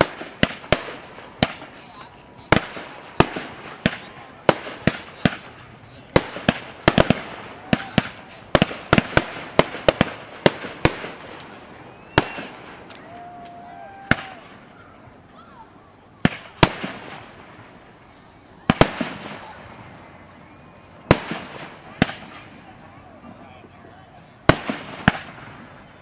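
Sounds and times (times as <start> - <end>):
firework shells bursting: 2.5 - 15.1, 16.2 - 17.9.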